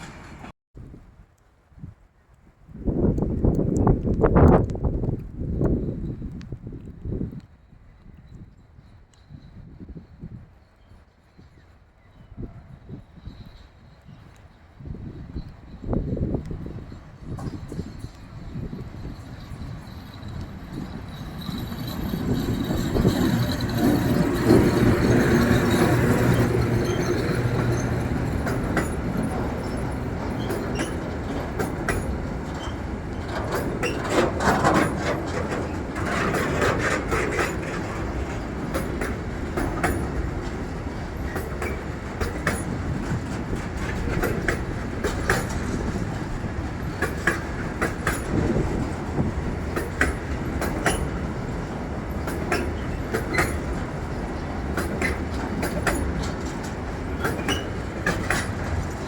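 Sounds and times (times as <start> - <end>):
train wheels clicking over rail joints: 0.0 - 0.5, 16.1 - 59.0
train rumble: 0.0 - 59.0
wheel squeal: 17.4 - 38.3, 57.2 - 58.6.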